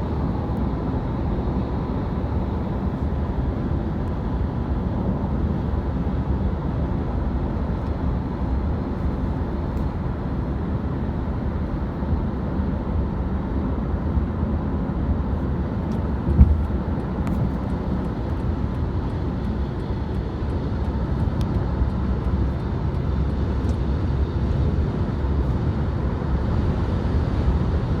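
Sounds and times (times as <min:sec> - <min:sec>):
jet engines rumbling: 0:00.0 - 0:10.4
brief thump: 0:16.3 - 0:17.5.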